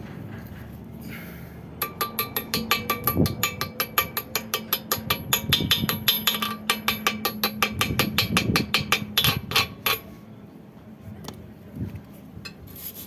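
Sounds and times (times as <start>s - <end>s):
hammer ringing on steel: 1.8s - 10.1s.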